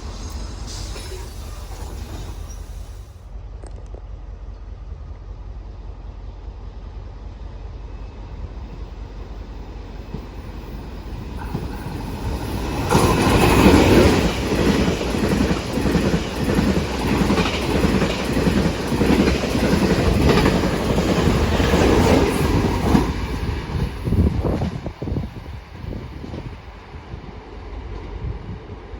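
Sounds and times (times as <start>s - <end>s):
train wheels clattering over rails: 8.6s - 26.6s.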